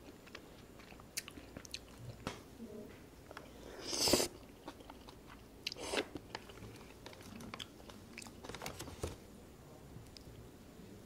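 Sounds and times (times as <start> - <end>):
person chewing food: 0.0 - 2.3, 3.2 - 8.6.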